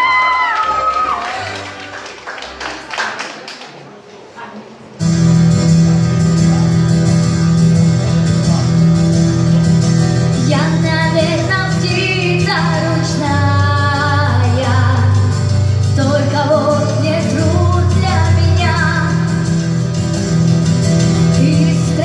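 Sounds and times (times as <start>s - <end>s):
accompaniment music: 0.0s - 2.8s, 5.0s - 22.0s
woman singing: 10.4s - 19.5s, 21.3s - 22.0s.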